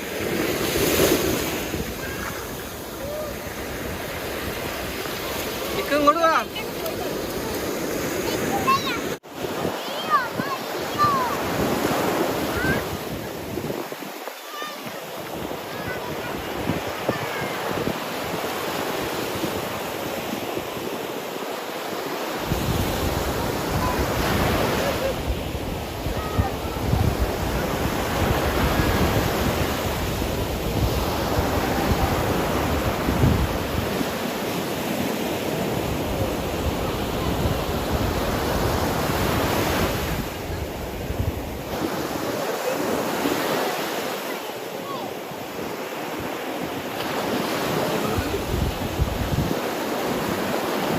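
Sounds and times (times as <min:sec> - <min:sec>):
wind buffeting microphone: 0:00.0 - 0:14.2, 0:14.9 - 0:21.1, 0:22.4 - 0:34.3, 0:35.5 - 0:42.2, 0:48.0 - 0:49.6
sea surf washing onto beach: 0:00.0 - 0:50.9.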